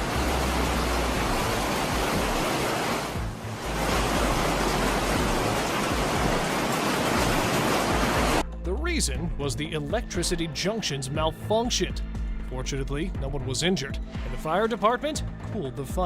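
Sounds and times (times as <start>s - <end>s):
hail pounding: 1.2s - 8.4s.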